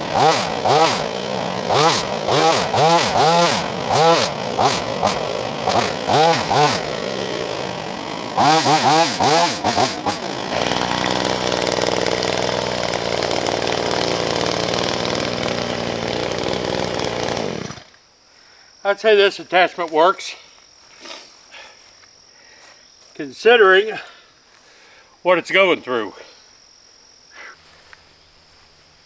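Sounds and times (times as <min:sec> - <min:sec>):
hedge trimmer motor revving: 0:00.0 - 0:18.0.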